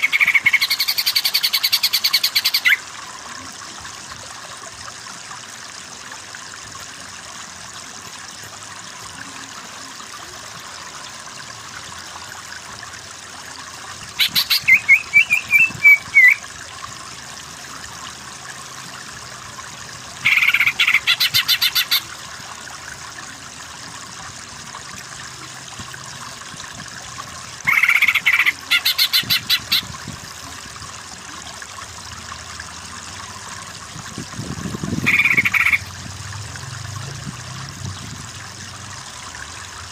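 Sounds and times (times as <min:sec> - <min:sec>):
bird rapid repeated chirps: 0:00.0 - 0:02.8, 0:14.2 - 0:16.4, 0:27.7 - 0:29.8, 0:35.1 - 0:35.8.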